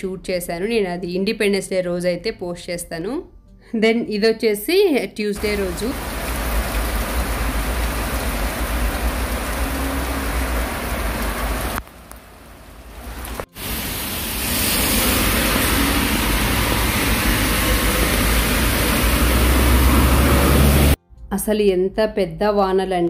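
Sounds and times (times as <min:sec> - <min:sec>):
heavy rain pouring: 0:05.4 - 0:21.0.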